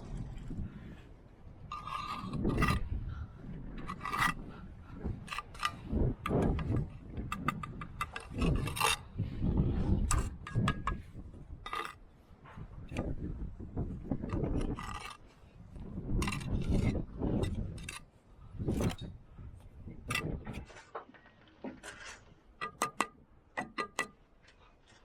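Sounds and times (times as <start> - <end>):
trowel scraping mortar: 1.7 - 2.9, 3.8 - 12.0, 14.0 - 19.0
bricks knocking and clinking: 5.2 - 12.0, 15.9 - 18.0, 19.9 - 24.2.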